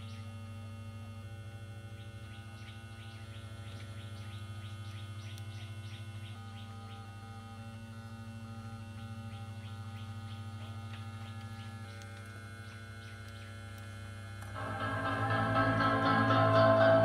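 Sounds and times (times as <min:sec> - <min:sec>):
low mains hum: 0:00.0 - 0:17.0
music from speaker: 0:14.5 - 0:17.0.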